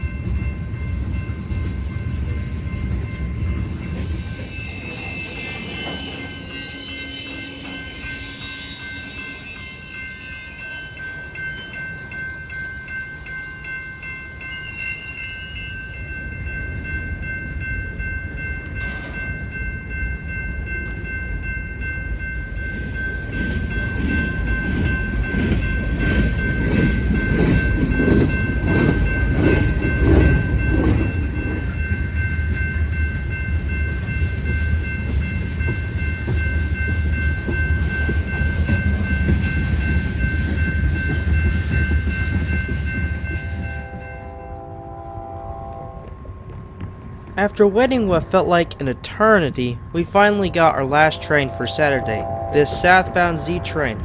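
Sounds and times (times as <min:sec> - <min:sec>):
freight train rumbling past: 0:00.0 - 0:54.0
train wheels clicking over rail joints: 0:18.2 - 0:19.5, 0:23.0 - 0:33.3.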